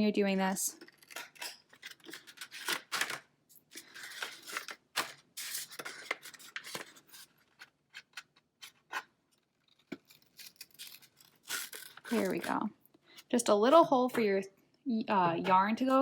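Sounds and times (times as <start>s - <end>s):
paper rustling: 0.8s - 12.7s
scissors snipping paper: 0.8s - 12.7s.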